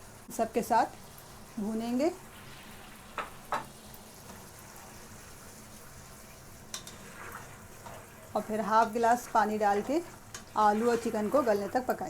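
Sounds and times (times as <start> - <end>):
food sizzling in a pan: 0.0 - 12.0
spoon knocking against pan: 3.2 - 3.7.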